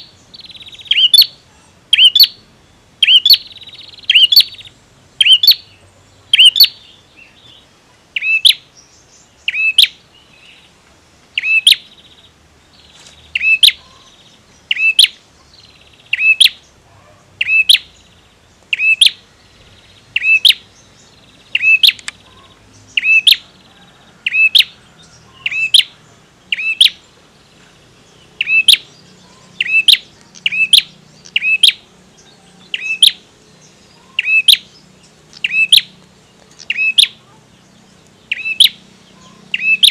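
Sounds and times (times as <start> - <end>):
bird giving sharp call notes: 0.0 - 2.4, 3.0 - 5.6, 11.4 - 11.9, 17.4 - 17.9, 20.2 - 20.7, 21.6 - 24.8, 28.4 - 31.9, 34.0 - 34.7, 35.4 - 36.0, 36.6 - 37.2, 38.3 - 39.9.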